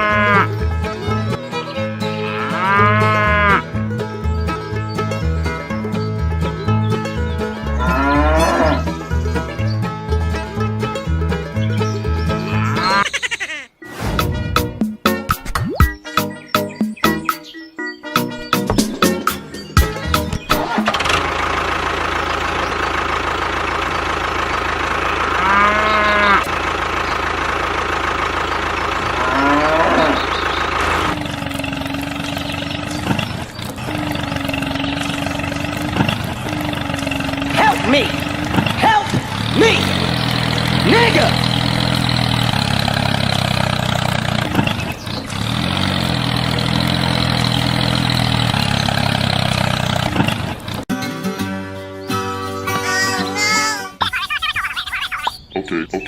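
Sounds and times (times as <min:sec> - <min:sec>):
cow mooing: 0:00.0 - 0:00.6, 0:02.1 - 0:03.7, 0:07.7 - 0:08.9, 0:12.4 - 0:13.0, 0:25.3 - 0:26.5, 0:29.0 - 0:30.4
small engine running: 0:19.8 - 0:50.9.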